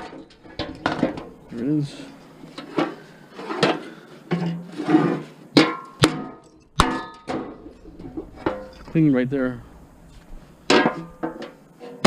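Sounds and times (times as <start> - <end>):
ringing metallic clang: 5.6 - 8.9.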